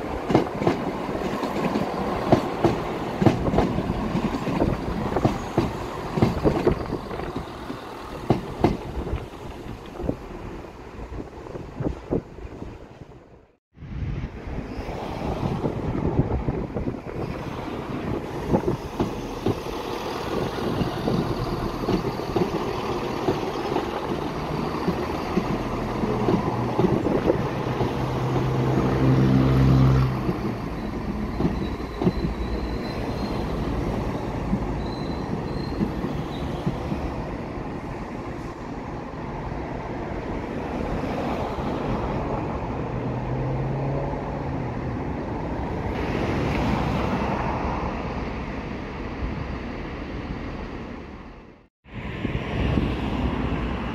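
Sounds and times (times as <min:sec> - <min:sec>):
wheels rumbling on rail: 0:00.0 - 0:53.9
diesel train engine droning: 0:15.8 - 0:39.2
faint high wheel squeal: 0:21.2 - 0:23.8, 0:30.4 - 0:33.7, 0:34.7 - 0:36.7.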